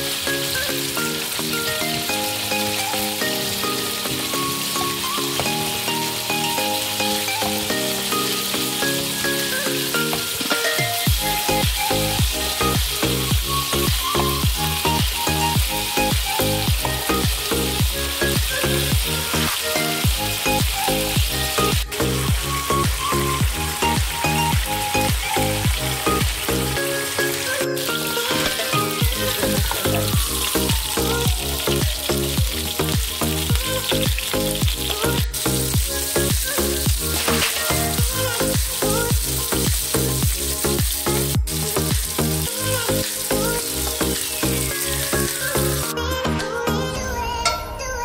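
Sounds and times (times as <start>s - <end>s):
chicken sizzling in a pan: 0.0s - 45.9s
background music with steady beat: 0.0s - 48.0s.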